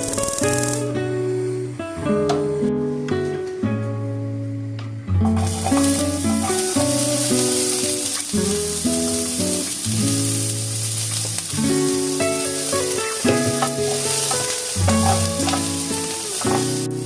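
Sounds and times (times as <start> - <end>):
background music: 0.0 - 17.0
food sizzling in a pan: 5.2 - 17.0.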